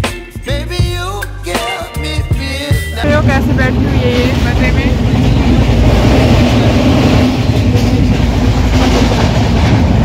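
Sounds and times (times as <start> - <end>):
train wheels running on rails: 3.0 - 10.0.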